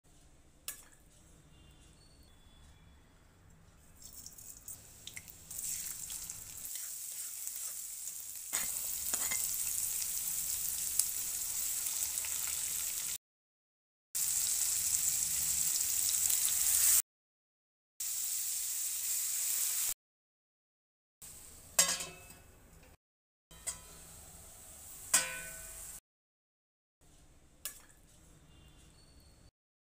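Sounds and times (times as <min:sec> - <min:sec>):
vegetables sizzling in oil: 0:04.0 - 0:13.2, 0:14.2 - 0:17.0, 0:18.0 - 0:20.0.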